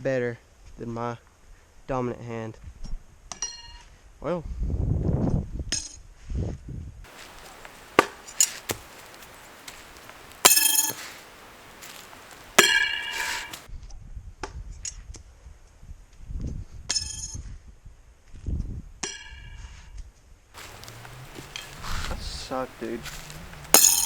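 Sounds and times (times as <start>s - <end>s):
steel knives clanging: 7.2s - 9.5s, 10.4s - 13.6s, 20.6s - 22.5s, 23.7s - 24.0s.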